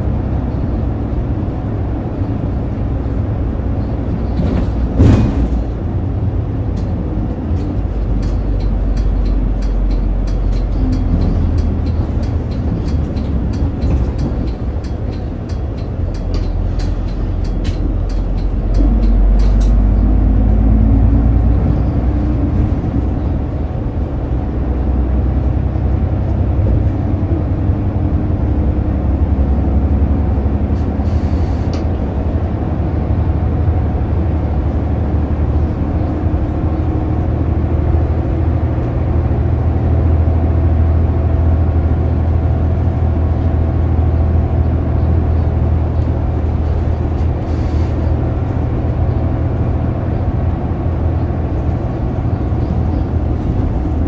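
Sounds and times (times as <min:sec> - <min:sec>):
bus diesel engine droning: 0:00.0 - 0:54.0
light clicks and rattles: 0:06.7 - 0:20.0.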